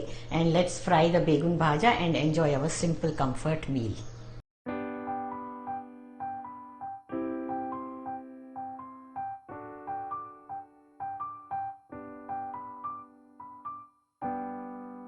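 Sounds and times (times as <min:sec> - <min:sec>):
gentle piano music: 0:04.7 - 0:15.0.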